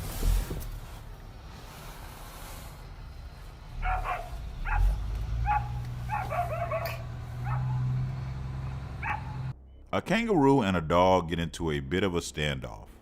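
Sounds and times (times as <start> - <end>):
dog barking in high yaps: 3.8 - 7.8, 9.0 - 9.5.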